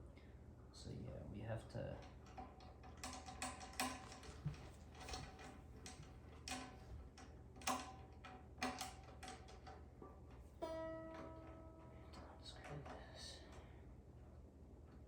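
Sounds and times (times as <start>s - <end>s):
faint ringing: 10.4s - 13.8s.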